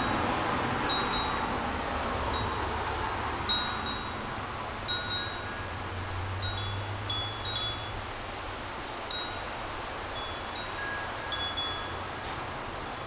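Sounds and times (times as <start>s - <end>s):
wind chime ringing: 0.9s - 1.4s, 3.5s - 4.2s, 4.9s - 5.8s, 6.4s - 8.0s, 10.2s - 12.0s.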